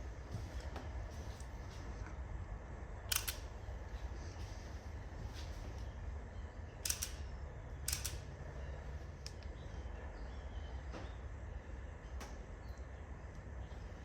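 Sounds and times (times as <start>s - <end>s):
steady low rumble: 0.0s - 14.0s
sharp clicks: 3.1s - 3.5s, 6.8s - 8.3s.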